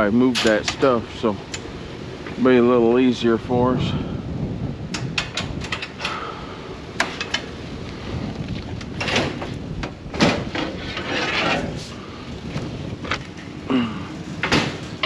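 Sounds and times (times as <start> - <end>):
metal clanks and clicks: 0.3 - 0.9, 4.9 - 6.2, 7.0 - 7.5, 8.9 - 11.7, 14.4 - 15.0
metal scraping: 8.9 - 12.0.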